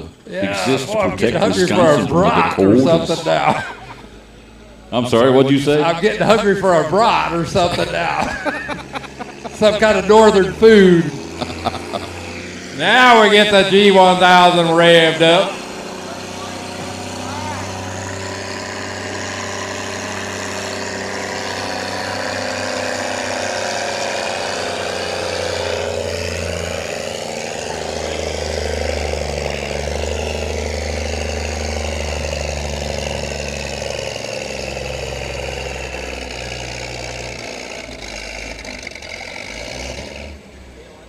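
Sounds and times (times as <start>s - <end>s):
tractor engine revving under load: 0.0s - 41.0s.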